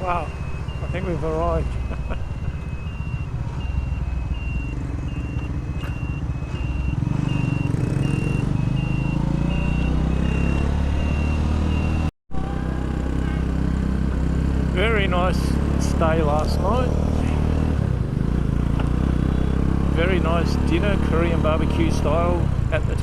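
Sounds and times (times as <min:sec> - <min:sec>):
motorcycle engine running: 0:00.0 - 0:11.2, 0:12.4 - 0:22.8
turn-signal beeping: 0:00.0 - 0:12.1.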